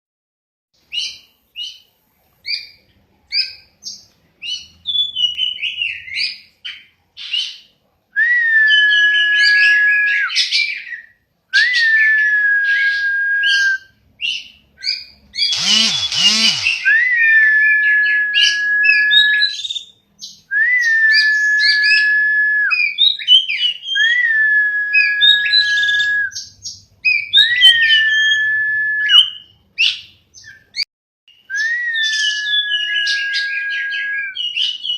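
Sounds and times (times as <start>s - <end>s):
songbird chirping: 0.8s - 12.0s, 12.7s - 34.9s
bird long steady whistle: 8.2s - 14.0s, 14.9s - 19.9s, 20.5s - 29.9s, 31.4s - 34.9s
bird rasping burst: 15.4s - 17.2s.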